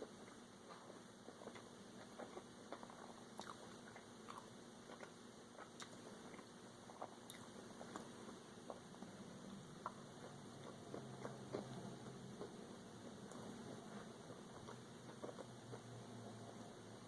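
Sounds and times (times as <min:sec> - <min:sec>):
person chewing crispy food: 0:00.2 - 0:08.8, 0:14.5 - 0:15.9.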